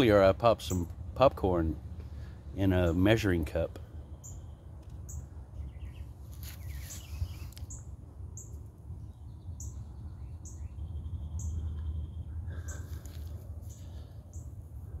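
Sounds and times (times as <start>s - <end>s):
steady low rumble: 0.0s - 15.0s
bird chirping: 3.9s - 14.6s.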